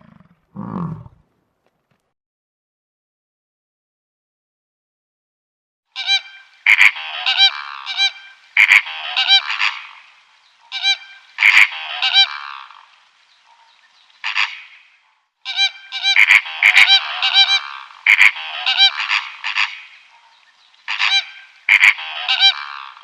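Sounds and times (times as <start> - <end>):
animal calling: 0.0 - 1.2, 15.5 - 20.3, 20.9 - 23.0.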